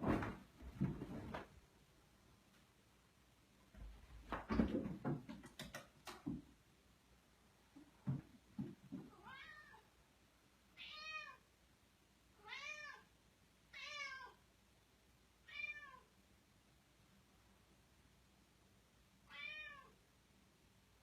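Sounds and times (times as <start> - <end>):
cat meowing: 9.1 - 9.9, 10.8 - 11.4, 12.4 - 13.1, 13.7 - 14.4, 15.5 - 16.1, 19.3 - 20.0.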